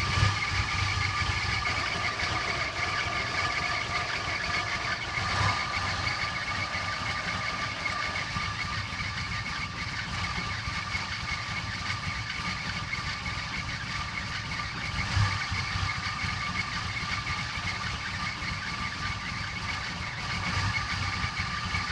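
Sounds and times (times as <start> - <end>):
high-pitched whine: 0.0 - 13.3
car engine idling roughly: 0.0 - 21.9.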